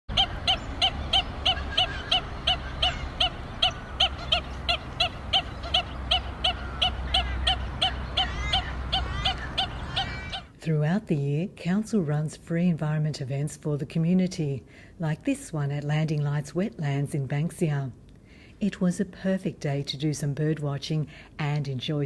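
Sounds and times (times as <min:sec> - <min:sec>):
gliding bird calls: 0:00.1 - 0:10.5
steady low rumble: 0:00.1 - 0:10.5.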